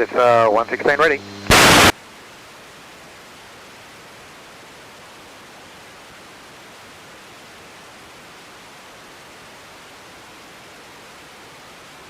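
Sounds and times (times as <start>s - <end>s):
radio hiss: 0.0s - 2.0s.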